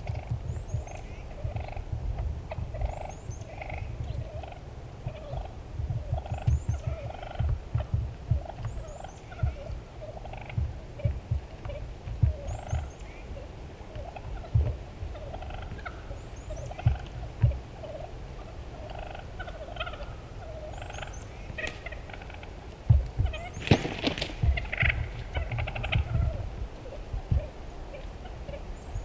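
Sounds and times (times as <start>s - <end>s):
turkey gobbling: 1.3s - 1.9s, 2.5s - 13.1s, 13.9s - 22.6s, 23.2s - 28.7s
low thumps: 22.9s - 27.5s.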